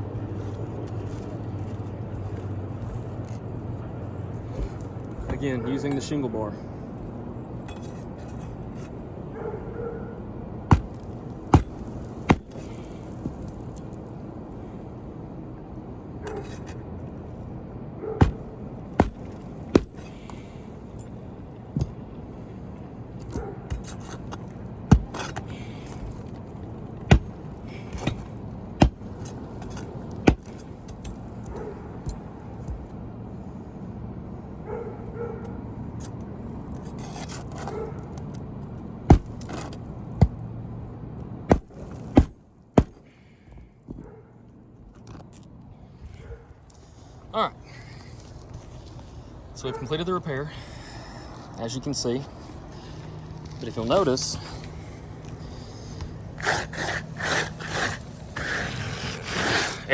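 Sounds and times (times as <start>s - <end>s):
shingle scraping: 7.6s - 9.1s, 10.7s - 14.2s, 16.2s - 16.9s, 18.2s - 21.0s, 23.2s - 32.9s, 36.0s - 37.9s, 39.0s - 40.4s, 41.5s - 43.2s, 52.2s - 59.9s.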